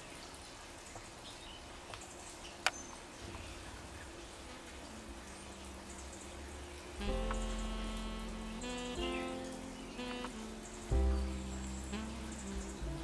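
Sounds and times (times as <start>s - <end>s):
faint bird chirps: 5.4s - 13.0s.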